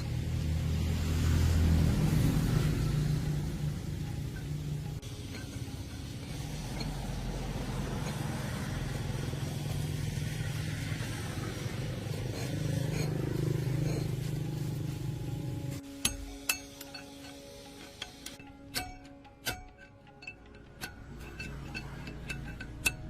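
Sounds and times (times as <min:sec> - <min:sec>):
vehicle engine humming: 0:00.0 - 0:23.0
sharp clinks: 0:16.0 - 0:23.0.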